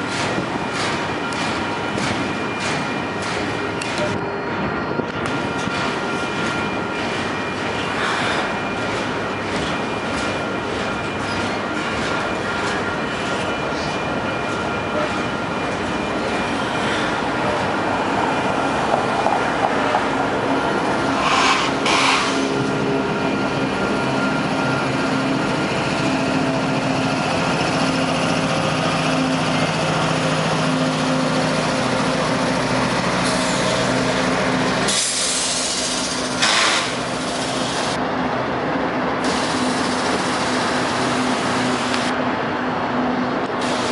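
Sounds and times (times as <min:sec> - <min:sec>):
locomotive engine hum: 0:00.0 - 0:43.9
train wheels rumbling on rail: 0:00.0 - 0:43.9
hiss bursts: 0:34.9 - 0:37.0.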